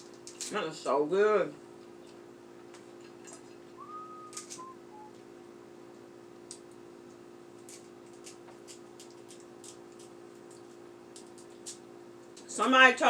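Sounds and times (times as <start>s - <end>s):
low hum: 3.4s - 6.2s.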